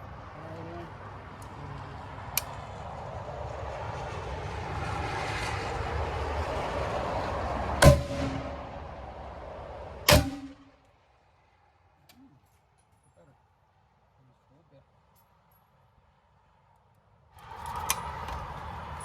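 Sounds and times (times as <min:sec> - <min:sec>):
gunshots: 0:07.8 - 0:08.7, 0:10.1 - 0:10.6.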